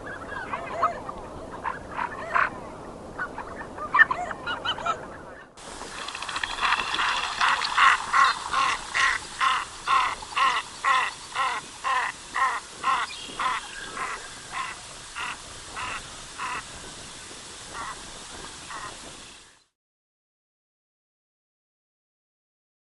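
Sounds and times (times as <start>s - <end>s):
duck calling: 6.6s - 16.7s, 17.7s - 18.0s.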